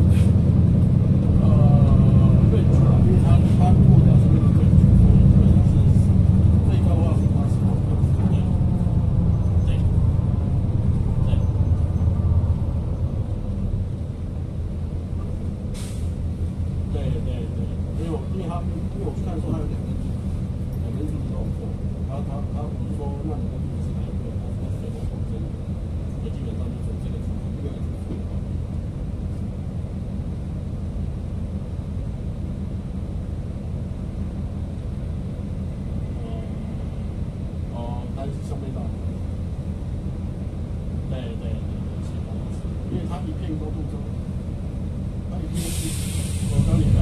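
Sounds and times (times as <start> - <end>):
bus engine and road rumble: 0.0 - 47.0
hiss of air: 15.7 - 16.2, 45.5 - 46.8.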